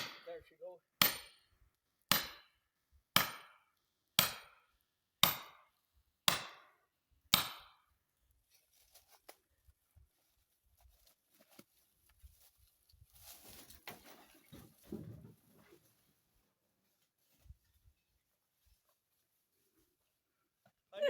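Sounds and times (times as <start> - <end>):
hammer striking wedge: 1.0 - 1.4, 2.1 - 2.5, 3.2 - 3.6, 4.2 - 4.6, 5.2 - 5.6, 6.3 - 7.8.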